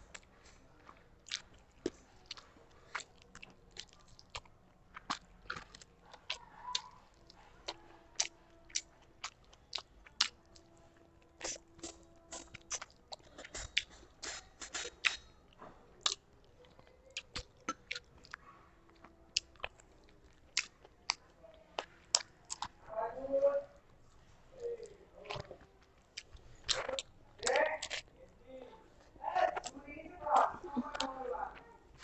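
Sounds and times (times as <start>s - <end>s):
wet chewing mouth sounds: 0.0s - 22.9s, 23.8s - 32.0s.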